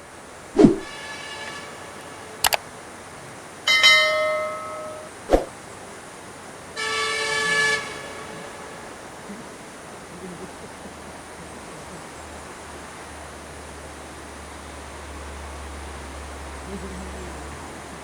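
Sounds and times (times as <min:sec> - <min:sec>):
bus musical horn: 0:00.9 - 0:02.5, 0:06.8 - 0:09.6.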